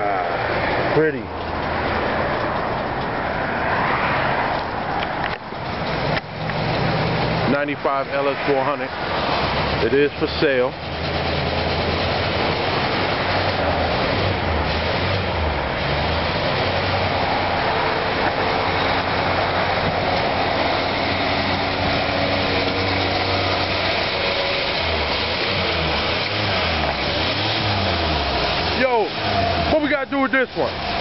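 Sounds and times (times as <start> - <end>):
vehicle engine running: 4.5 - 31.0
wash of noise: 11.8 - 31.0.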